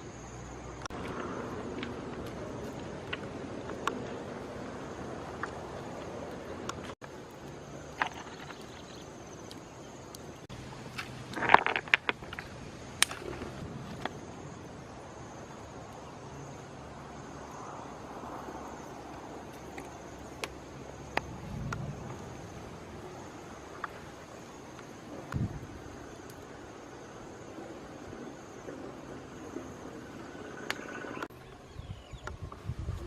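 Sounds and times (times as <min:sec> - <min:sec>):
outdoor background hiss: 0:00.0 - 0:33.0
sharp crackles and rustles: 0:00.8 - 0:15.0.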